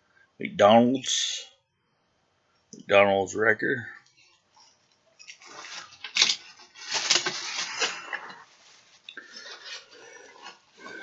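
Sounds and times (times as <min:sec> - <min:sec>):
wrapping rustling: 0:04.2 - 0:11.0.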